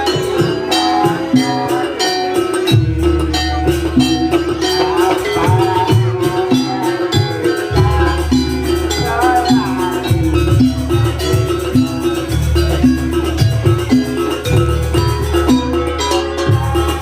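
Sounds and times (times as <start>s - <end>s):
gamelan music: 0.0s - 17.0s
ringing pitched percussion: 0.0s - 17.0s
steady drum beat: 0.0s - 17.0s.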